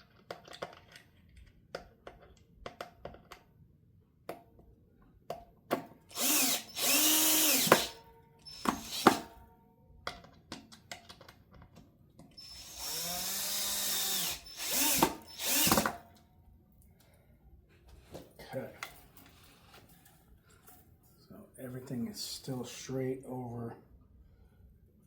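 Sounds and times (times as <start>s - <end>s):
electric drill-driver motor: 6.1s - 9.4s, 12.4s - 16.1s.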